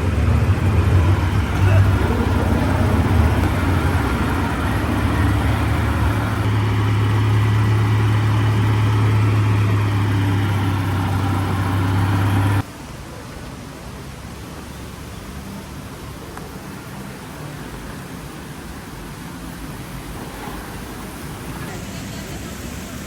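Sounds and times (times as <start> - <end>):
vehicle engine humming: 0.0 - 12.7.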